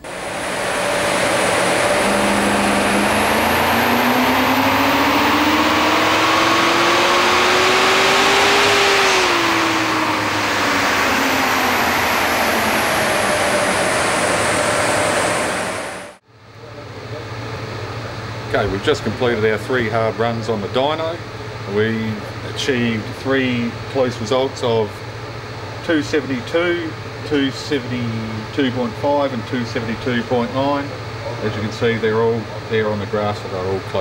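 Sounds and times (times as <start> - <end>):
car engine revving at full throttle: 0.0 - 16.2
dynamometer rollers winding down: 0.0 - 16.2.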